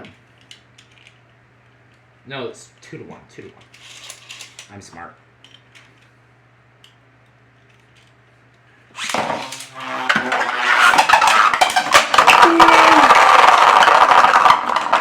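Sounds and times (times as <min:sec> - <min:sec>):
spinning top launch whir: 0:10.2 - 0:15.0
spinning tops clattering: 0:10.7 - 0:15.0.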